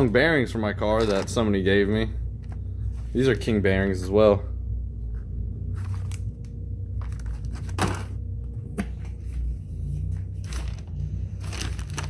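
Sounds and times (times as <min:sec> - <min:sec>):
steady low hum: 0:00.0 - 0:12.0
packaging rustling and knocking: 0:07.0 - 0:08.2, 0:10.4 - 0:12.0.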